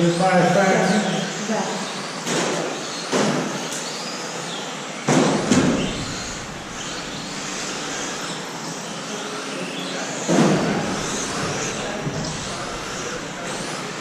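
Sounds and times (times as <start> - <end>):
sharp knocks: 5.1 - 8.2
electric motor whine: 5.4 - 8.5, 10.6 - 14.0
rc trucks tyres and motors hissing: 5.4 - 14.0.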